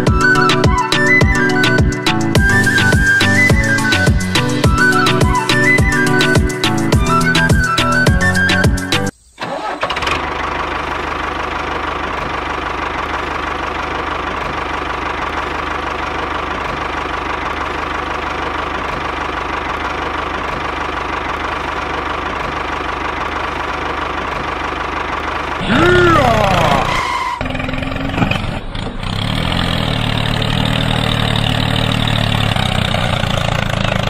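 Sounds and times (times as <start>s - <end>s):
background music: 0.0s - 9.1s
small tractor engine idling: 9.4s - 34.0s.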